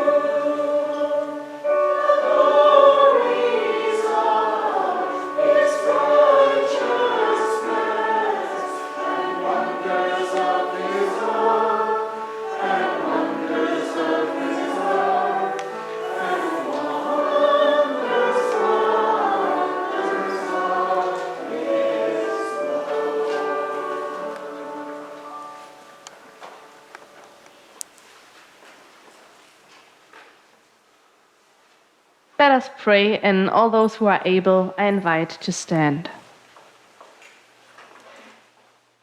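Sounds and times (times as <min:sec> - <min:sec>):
church choir singing: 0:00.0 - 0:27.3.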